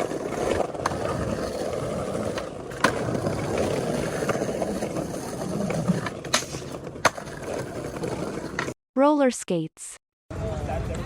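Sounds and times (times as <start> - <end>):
skateboard clacks: 0.0 - 8.7
skateboard wheels rolling on pavement: 0.0 - 8.8.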